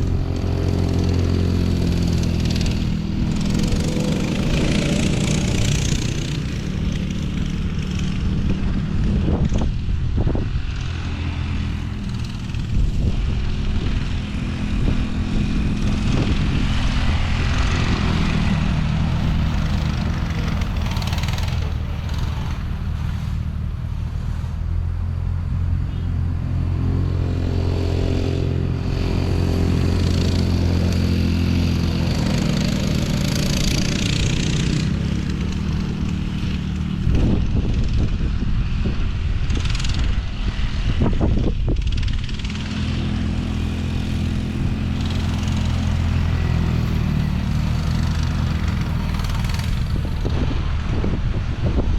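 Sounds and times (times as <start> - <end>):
off-road vehicle engine running: 0.0 - 51.9.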